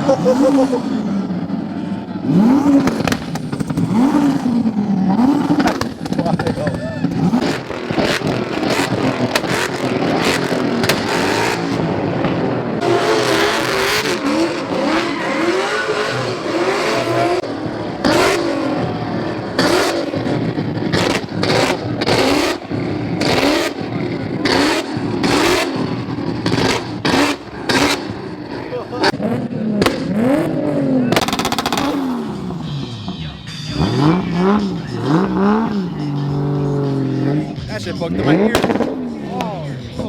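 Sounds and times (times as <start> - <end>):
car engine revving: 0.0 - 40.0
exhaust pops and bangs: 2.7 - 4.4, 5.4 - 9.8, 10.8 - 11.2, 29.7 - 30.2, 31.1 - 32.1, 38.2 - 40.0.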